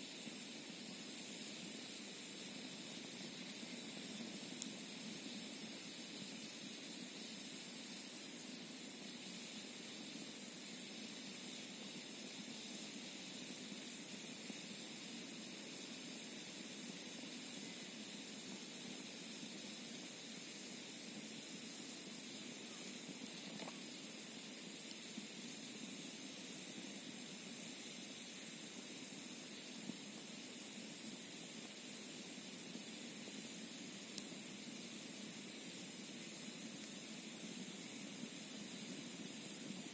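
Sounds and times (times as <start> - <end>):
campfire popping: 22.1 - 25.8.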